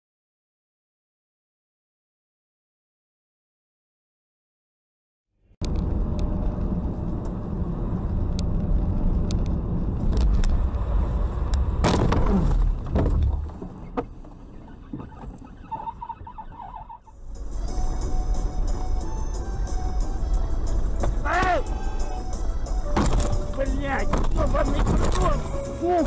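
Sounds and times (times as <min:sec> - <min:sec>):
car engine and tyre rumble: 0:05.6 - 0:26.0.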